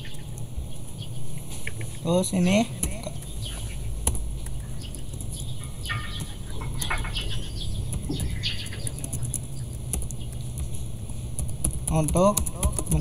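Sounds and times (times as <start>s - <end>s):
birds chirping: 0.0s - 13.0s
low steady hum: 0.0s - 13.0s
keyboard typing clicks: 2.7s - 13.0s.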